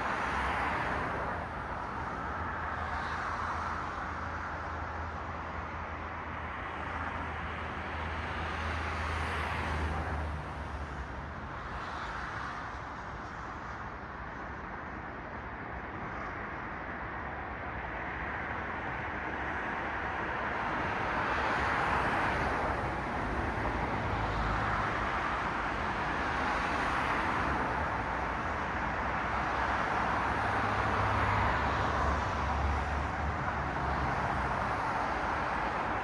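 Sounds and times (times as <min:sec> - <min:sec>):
cars passing: 0:17.4 - 0:36.0.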